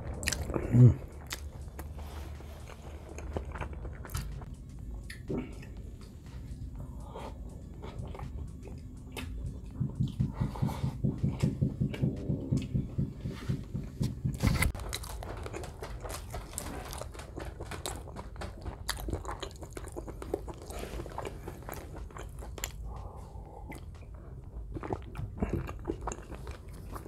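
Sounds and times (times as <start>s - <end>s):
low hum: 0.0s - 18.7s
chewing with wet mouth clicks: 0.2s - 1.9s, 2.6s - 4.5s, 7.8s - 10.3s, 17.6s - 27.0s.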